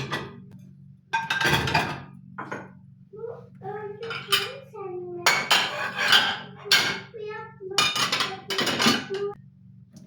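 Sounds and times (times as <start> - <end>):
dishes and cutlery clattering: 0.0 - 0.4, 1.1 - 2.8, 4.0 - 9.4.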